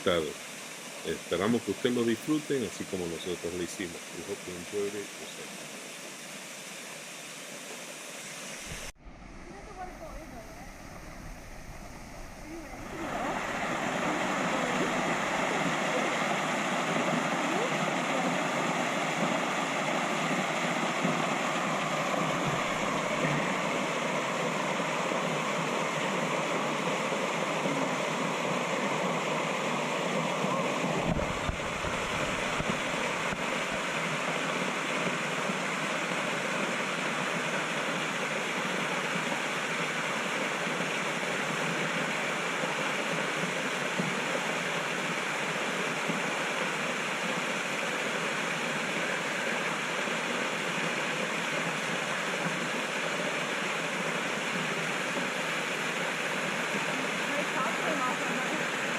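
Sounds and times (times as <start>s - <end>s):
waterfall rushing: 0.0s - 58.9s
low rumble: 8.9s - 15.4s.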